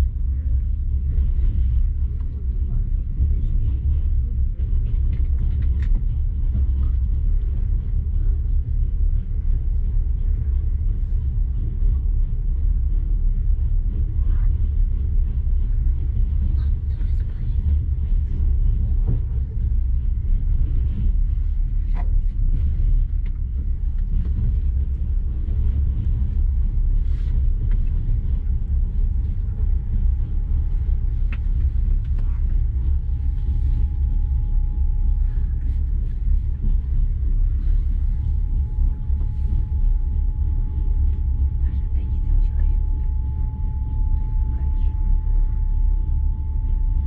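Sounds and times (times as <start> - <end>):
faint steady whine: 0.0 - 47.0
train rumbling from inside carriage: 0.0 - 47.0.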